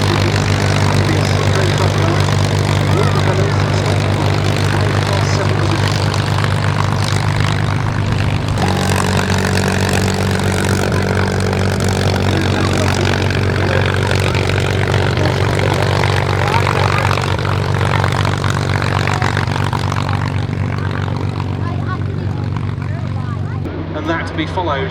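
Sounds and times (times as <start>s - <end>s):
propeller aircraft engines droning: 0.0s - 24.9s.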